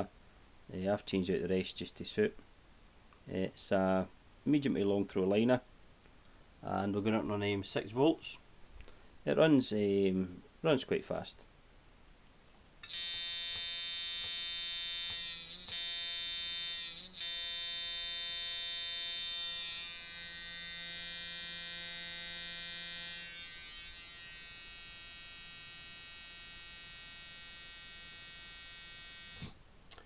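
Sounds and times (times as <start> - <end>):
tattoo machine buzzing: 12.8 - 29.6.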